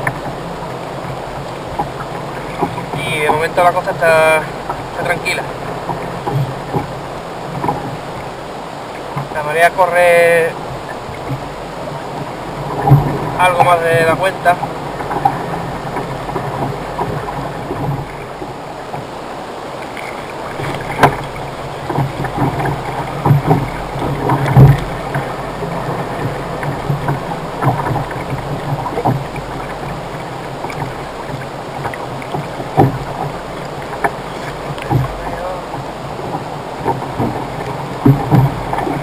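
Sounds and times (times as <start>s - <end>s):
water lapping against hull: 0.0s - 39.0s
knocks on kayak hull: 4.6s - 8.3s, 12.2s - 19.1s, 19.8s - 39.0s.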